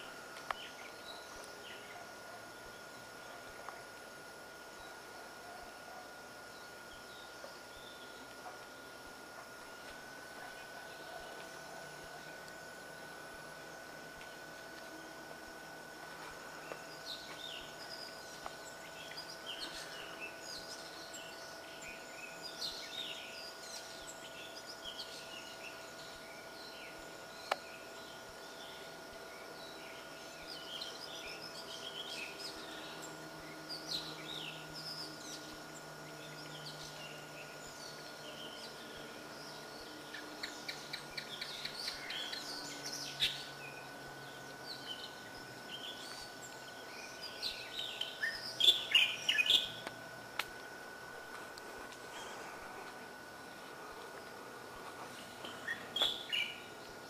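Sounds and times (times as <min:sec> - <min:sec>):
birds chirping and singing: 0:16.4 - 0:50.2, 0:52.0 - 0:57.0.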